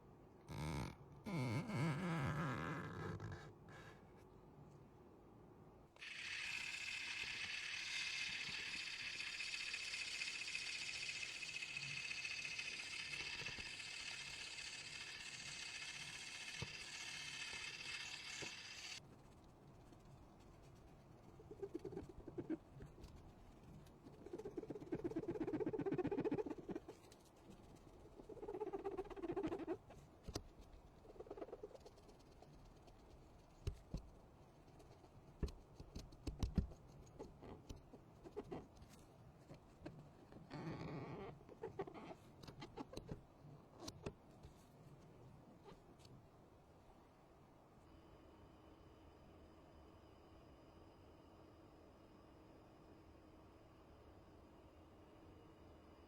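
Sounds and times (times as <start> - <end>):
small motorised tool whirring: 6.0 - 19.0.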